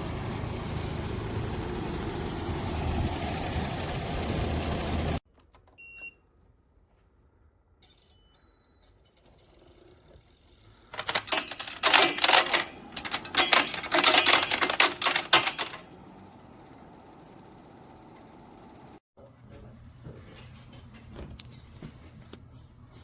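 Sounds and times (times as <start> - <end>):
air conditioner rattling: 10.9 - 19.0
air conditioner humming: 10.9 - 23.0.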